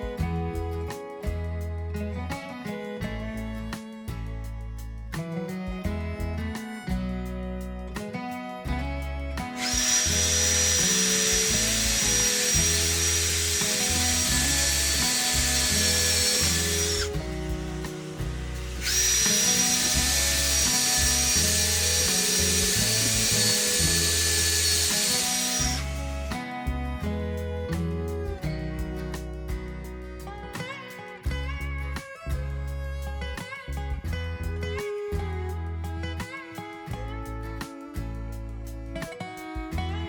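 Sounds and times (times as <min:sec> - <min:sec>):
power tool whining: 0:09.4 - 0:27.0.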